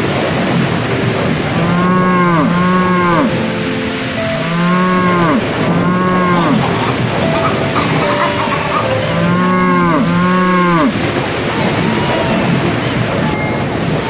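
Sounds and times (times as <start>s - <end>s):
steady rushing noise: 0.0s - 14.0s
cattle mooing: 1.6s - 3.4s, 4.4s - 12.9s.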